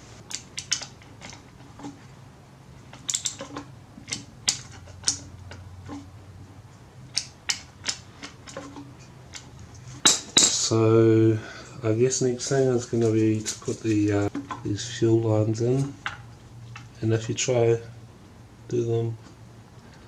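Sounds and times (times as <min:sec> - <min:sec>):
hand tool clicking on metal: 0:07.1 - 0:10.8.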